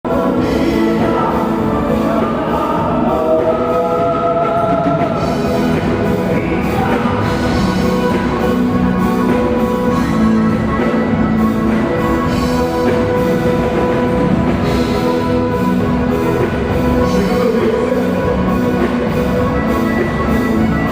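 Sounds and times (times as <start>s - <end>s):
live dance band music: 0.0s - 20.9s
person singing: 0.0s - 20.9s.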